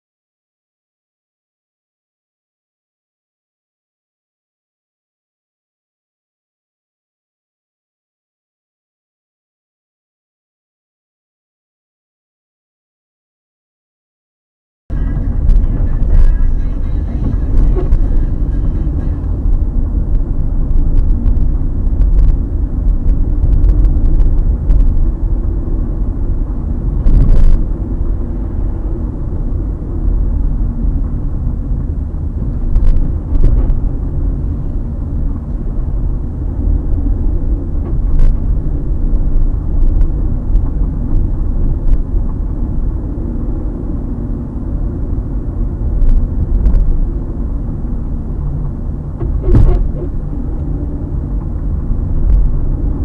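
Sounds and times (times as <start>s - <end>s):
road and tyre rumble: 14.9s - 53.0s
suspension creaks and knocks: 49.1s - 52.6s.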